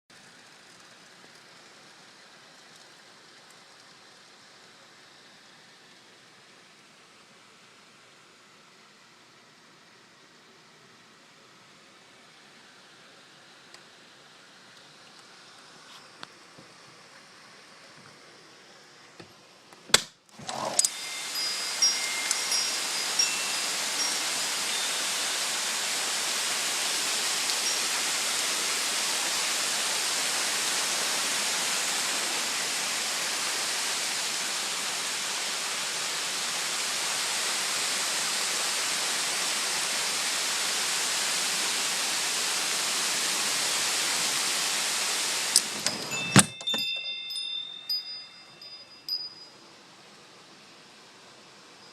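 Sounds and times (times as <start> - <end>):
wind chimes ringing faintly: 20.8 - 29.0, 45.6 - 50.8.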